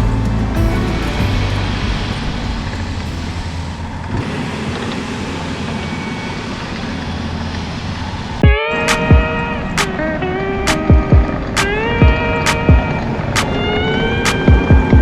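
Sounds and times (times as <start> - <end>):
vehicle engine rumbling: 0.0 - 8.6.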